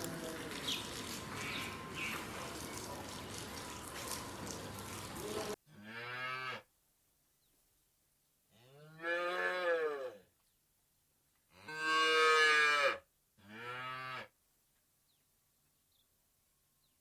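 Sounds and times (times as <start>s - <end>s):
cow mooing: 5.7s - 6.6s, 8.6s - 10.2s, 11.6s - 14.3s.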